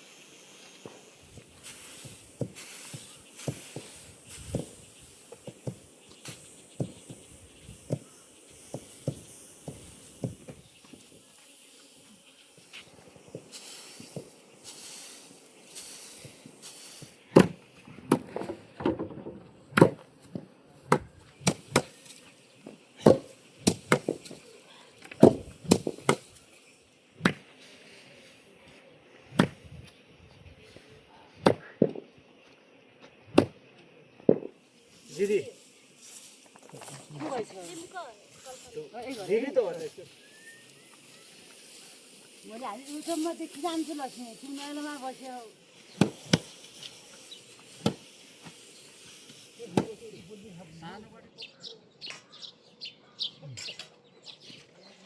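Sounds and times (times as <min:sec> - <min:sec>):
faint hiss: 0:00.0 - 0:18.8, 0:19.6 - 0:51.2
sharp chopping knocks: 0:17.4 - 0:18.3, 0:19.7 - 0:20.0, 0:23.0 - 0:24.4, 0:25.2 - 0:26.3, 0:29.3 - 0:29.6, 0:31.4 - 0:32.0, 0:33.3 - 0:33.6, 0:46.0 - 0:46.5, 0:47.8 - 0:48.0.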